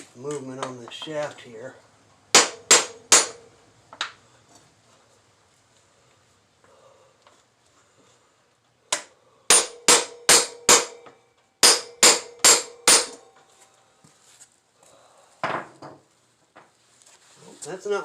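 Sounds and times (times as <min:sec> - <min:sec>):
hammer striking metal shaft: 0:02.4 - 0:03.5, 0:08.9 - 0:13.3.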